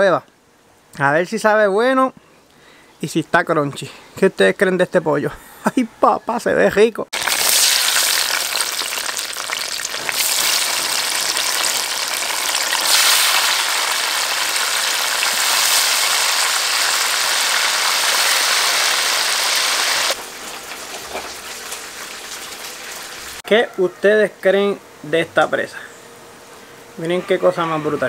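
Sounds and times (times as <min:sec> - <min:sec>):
food frying in hot oil: 0:07.2 - 0:23.4.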